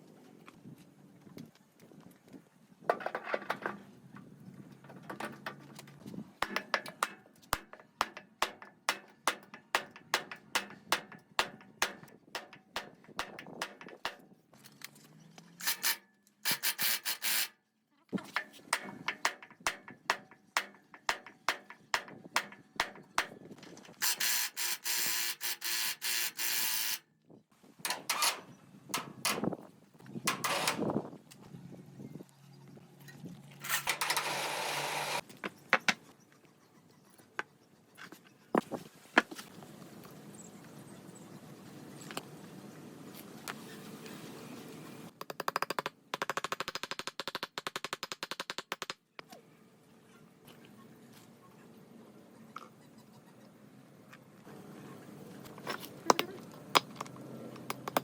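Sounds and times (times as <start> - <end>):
sharp taps and clicks on metal: 5.2 - 14.3, 18.3 - 26.7, 27.9 - 28.4, 29.0 - 29.6, 30.3 - 31.0, 45.1 - 49.0, 56.1 - 58.0.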